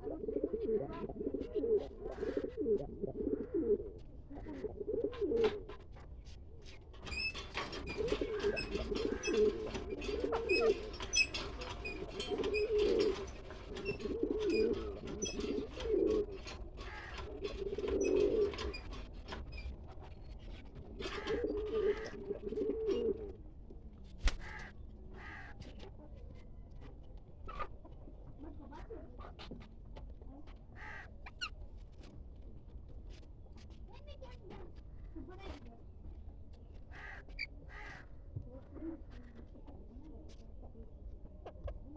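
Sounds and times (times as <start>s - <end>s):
pigeons cooing: 0.0s - 5.7s, 7.8s - 18.9s, 21.0s - 23.4s.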